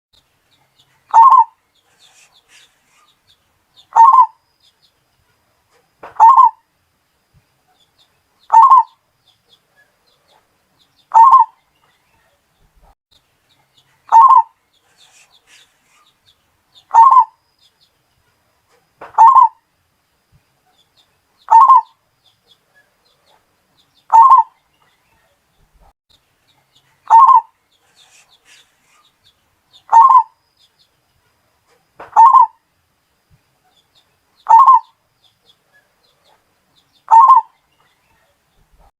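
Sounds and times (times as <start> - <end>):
dove cooing: 1.1 - 2.2, 3.9 - 4.4, 6.1 - 6.6, 8.5 - 8.9, 11.1 - 11.5, 14.1 - 15.6, 16.9 - 17.4, 19.2 - 19.6, 21.5 - 21.9, 24.1 - 24.5, 27.1 - 28.6, 29.9 - 30.3, 32.1 - 32.6, 34.5 - 34.9, 37.1 - 37.5.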